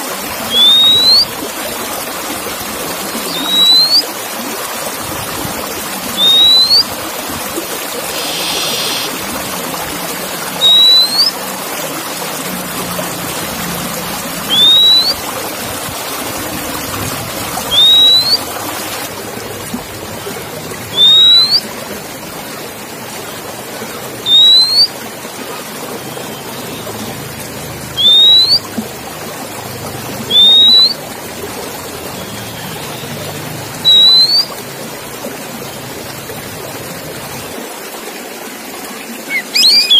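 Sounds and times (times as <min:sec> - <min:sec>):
bird upswept whistle: 0:00.4 - 0:01.3, 0:03.2 - 0:04.1, 0:06.2 - 0:06.9, 0:08.1 - 0:09.2, 0:10.6 - 0:11.4, 0:14.5 - 0:15.2, 0:17.7 - 0:18.5, 0:20.9 - 0:21.7, 0:24.2 - 0:24.9, 0:28.0 - 0:28.7, 0:30.3 - 0:31.0, 0:33.8 - 0:34.5, 0:39.2 - 0:39.9
steady hiss: 0:08.0 - 0:09.2
bird buzzy call: 0:08.0 - 0:09.3, 0:17.7 - 0:18.4, 0:39.2 - 0:39.9.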